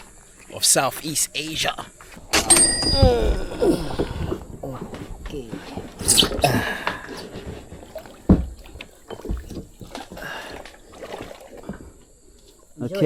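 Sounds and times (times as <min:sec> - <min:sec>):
paddle strokes swishing through water: 0:00.0 - 0:12.9
dull knocks: 0:02.1 - 0:12.0.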